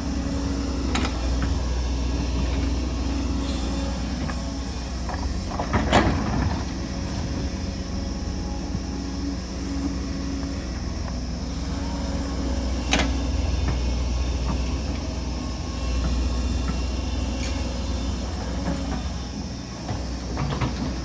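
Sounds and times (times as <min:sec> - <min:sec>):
diesel excavator engine rumbling: 0:00.0 - 0:21.0.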